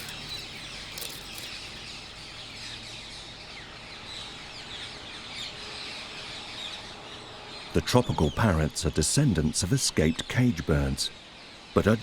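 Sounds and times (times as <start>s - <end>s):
parakeets calling: 0.0s - 2.6s.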